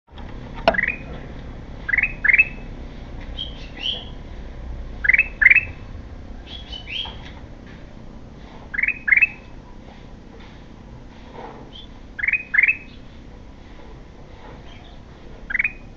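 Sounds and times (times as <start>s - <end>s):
bird calling upslurred notes: 0.7s - 1.1s, 8.7s - 9.4s, 12.2s - 13.0s, 15.5s - 15.9s
soft high bird chirps: 0.7s - 1.1s, 1.9s - 2.6s, 8.7s - 9.4s, 11.7s - 13.0s, 14.7s - 15.9s.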